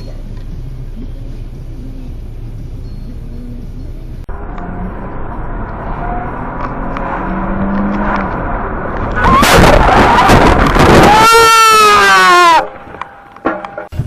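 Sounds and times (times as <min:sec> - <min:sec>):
car road noise: 0:00.0 - 0:14.0
car collision crunching: 0:06.5 - 0:13.9.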